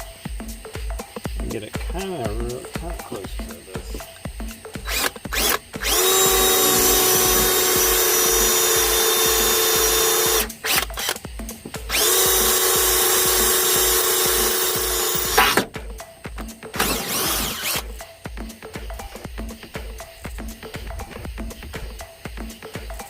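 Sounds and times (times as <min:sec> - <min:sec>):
electric drill whining: 0:04.8 - 0:11.2, 0:11.8 - 0:15.8, 0:16.7 - 0:18.0.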